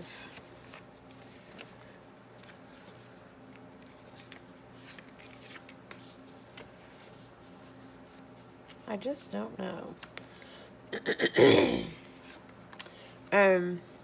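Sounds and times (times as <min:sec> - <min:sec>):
paper rustling: 0:00.2 - 0:08.8.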